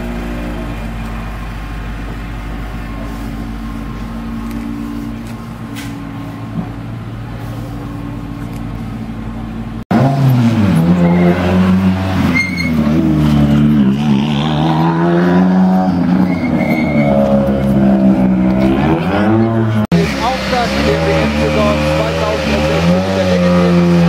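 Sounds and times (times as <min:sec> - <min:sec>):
steady engine hum: 0:00.0 - 0:24.0
rally car engine revving hard: 0:09.9 - 0:24.0.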